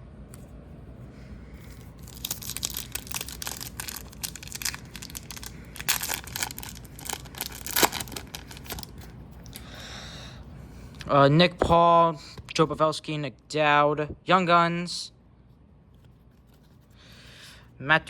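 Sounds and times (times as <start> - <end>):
foil wrapper tearing and crinkling: 1.7 - 9.6.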